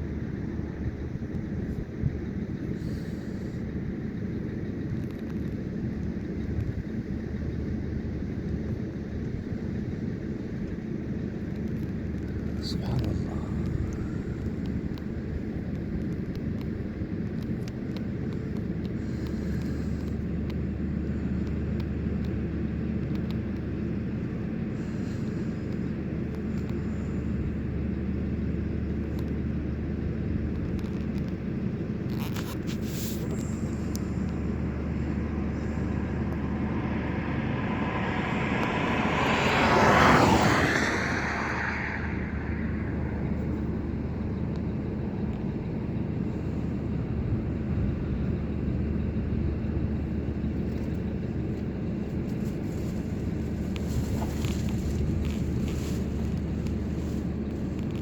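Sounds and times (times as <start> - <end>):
low engine hum: 0.0 - 58.0
vehicle passing by: 32.8 - 45.0.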